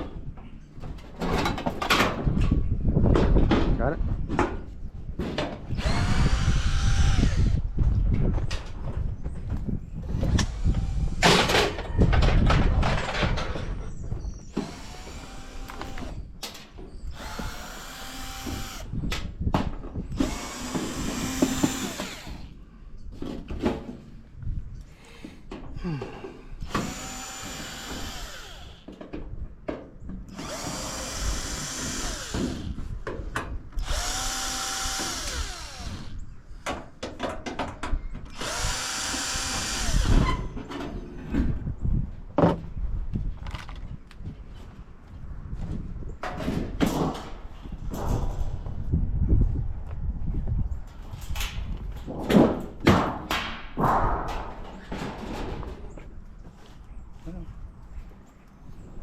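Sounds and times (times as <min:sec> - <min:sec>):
metallic knocks and clatter: 0:11.3 - 0:14.2, 0:36.7 - 0:38.1
power drill backing out screws: 0:14.4 - 0:19.0, 0:20.0 - 0:22.6, 0:26.6 - 0:29.0, 0:30.3 - 0:32.8, 0:33.8 - 0:36.2, 0:38.3 - 0:40.6.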